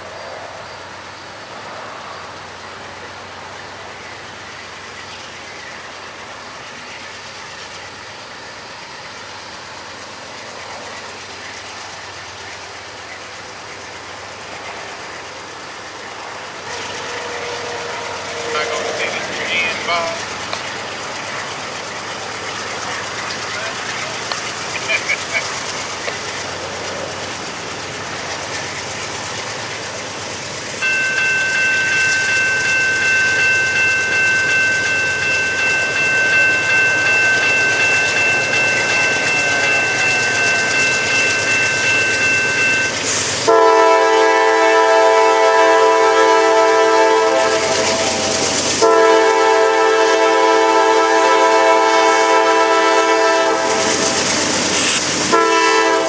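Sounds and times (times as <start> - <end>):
diesel locomotive passing: 0.0 - 56.0
wheels clattering on rails: 2.3 - 43.6, 46.8 - 50.0, 50.6 - 56.0
locomotive air horn blasts: 16.6 - 19.0, 43.4 - 53.8, 55.3 - 56.0
high-pitched squeal: 27.8 - 43.5.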